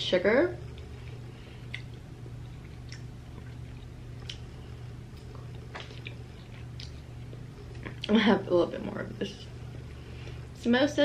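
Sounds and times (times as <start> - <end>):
steady low hum: 0.0 - 11.0
soft wet chewing: 0.7 - 8.2.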